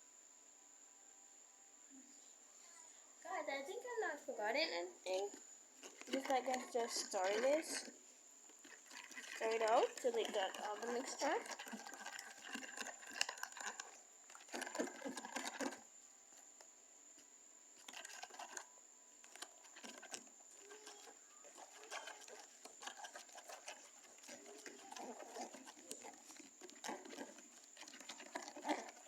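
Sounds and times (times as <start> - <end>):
spoon stirring wet slime: 5.1 - 16.5, 17.2 - 29.0.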